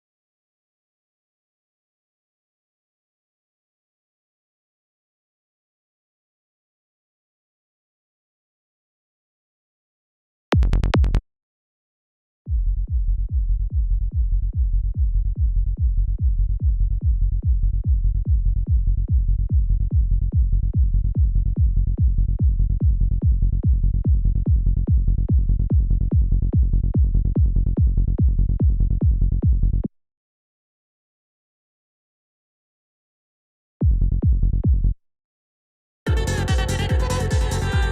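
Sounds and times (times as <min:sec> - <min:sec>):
psytrance kick drum: 0:10.6 - 0:11.2, 0:12.5 - 0:29.8, 0:33.8 - 0:35.0, 0:36.1 - 0:37.9
synthesized bass: 0:10.6 - 0:11.2, 0:12.6 - 0:29.8, 0:33.9 - 0:35.0, 0:36.1 - 0:37.9.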